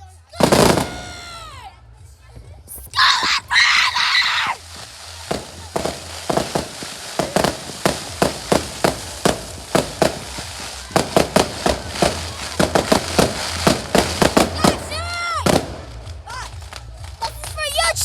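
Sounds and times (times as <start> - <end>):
hissing firework burst: 0.4 - 1.5, 3.3 - 16.2
firework cracks and bangs: 0.4 - 1.6, 2.8 - 17.9.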